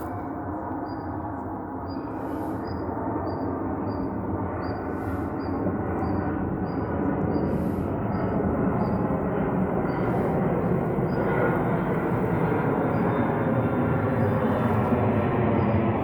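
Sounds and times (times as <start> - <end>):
airplane engine rumble: 0.0 - 16.0
faint high chirp: 1.8 - 9.1, 9.8 - 10.3, 11.0 - 11.6, 12.8 - 14.7.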